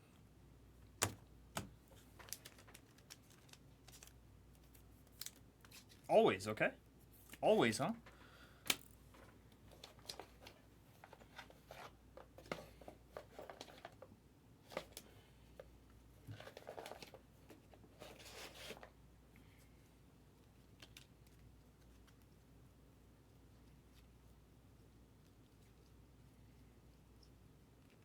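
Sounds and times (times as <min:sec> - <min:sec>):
handling trading cards: 0:01.0 - 0:06.1, 0:07.2 - 0:19.0, 0:20.4 - 0:22.5.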